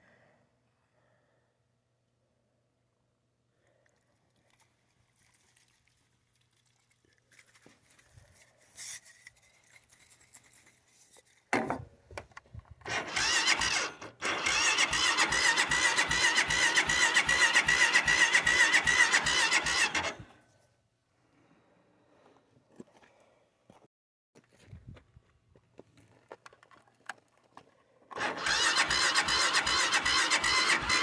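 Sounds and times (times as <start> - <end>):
engine cranking on starter: 12.9 - 20.4, 28.1 - 31.0
starter whine: 12.9 - 20.4, 28.1 - 31.0.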